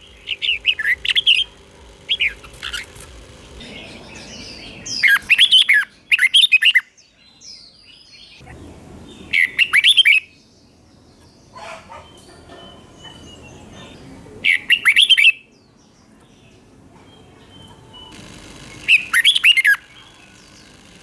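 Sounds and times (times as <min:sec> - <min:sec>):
bird singing whistled notes: 0:00.0 - 0:08.4.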